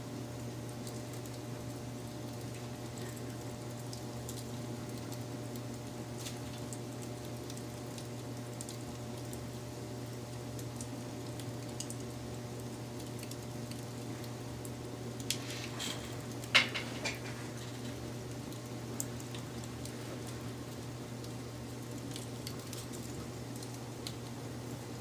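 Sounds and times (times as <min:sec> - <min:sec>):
fire crackling and popping: 0:00.1 - 0:25.0
wood fire rushing: 0:15.2 - 0:18.1.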